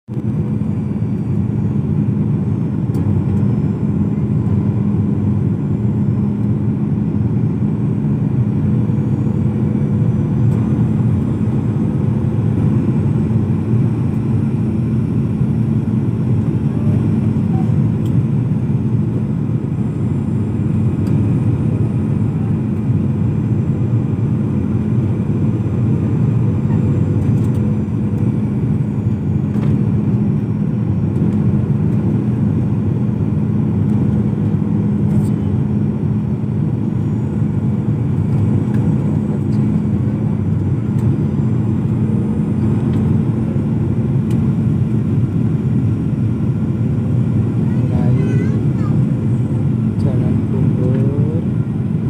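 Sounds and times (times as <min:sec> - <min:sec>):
airliner cabin engine drone: 0:00.1 - 0:52.0.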